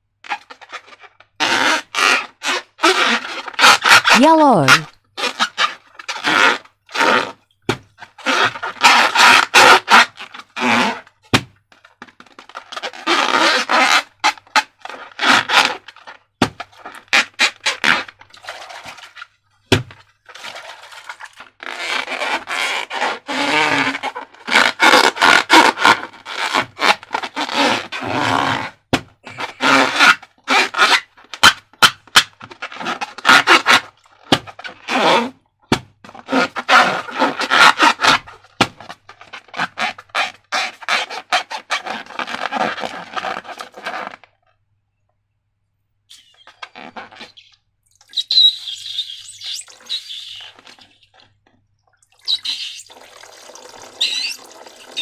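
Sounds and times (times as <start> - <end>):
rubbery scraping of balloons: 0.2 - 44.4, 46.1 - 51.4, 52.3 - 55.0.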